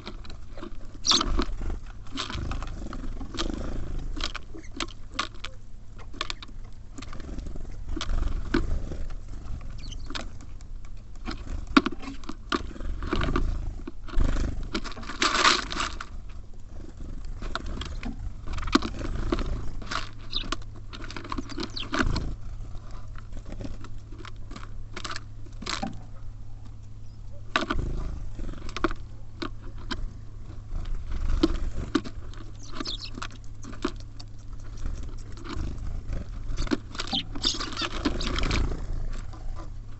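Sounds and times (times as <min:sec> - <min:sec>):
birds pecking at seed: 0:00.0 - 0:39.9
steady low hum: 0:00.0 - 0:39.9.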